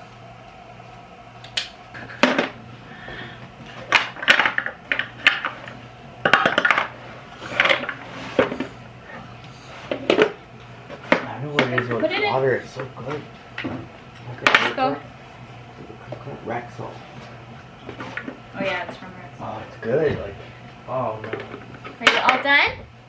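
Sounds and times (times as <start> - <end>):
low steady hum: 0.0 - 23.0
hard objects clinking and knocking: 3.8 - 8.7.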